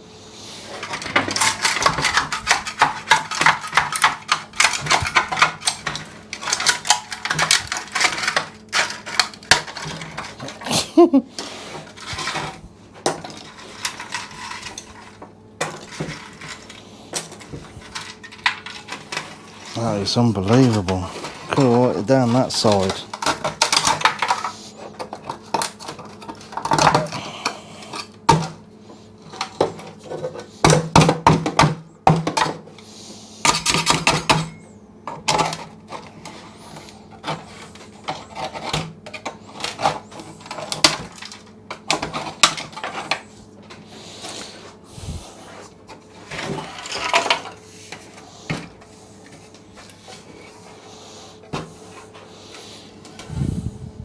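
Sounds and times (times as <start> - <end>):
metal scraper scraping sealer: 17.4 - 24.9
steady low hum: 42.0 - 54.0.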